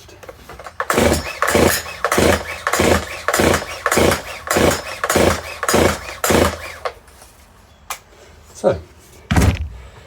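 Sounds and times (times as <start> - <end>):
chainsaw starter cord pulled: 0.2 - 7.0.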